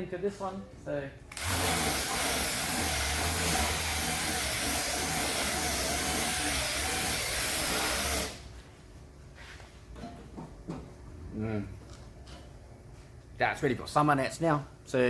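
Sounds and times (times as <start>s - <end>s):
cleaning machine hissing: 1.4s - 8.4s.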